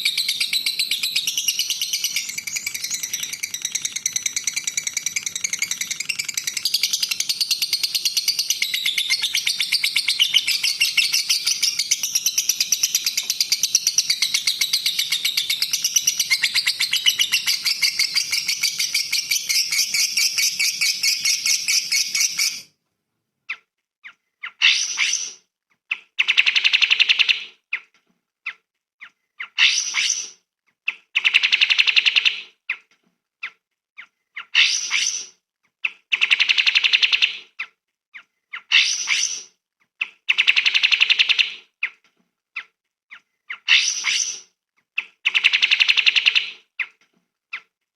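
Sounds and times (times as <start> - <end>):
songbird singing: 0.0 - 22.7.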